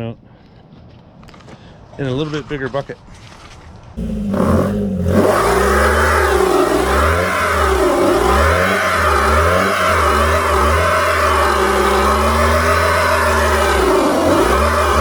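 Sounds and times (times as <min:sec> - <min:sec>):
spinning tyre hiss: 0:04.0 - 0:15.0
truck engine revving hard: 0:04.0 - 0:15.0.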